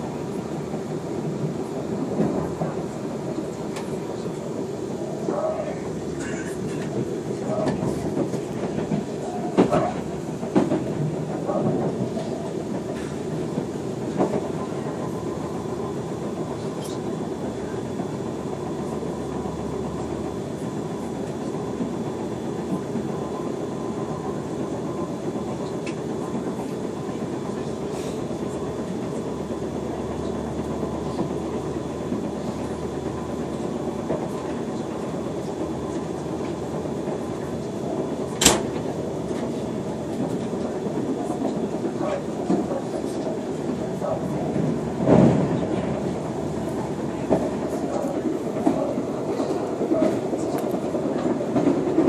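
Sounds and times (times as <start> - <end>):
train running noise inside carriage: 0.0 - 52.0.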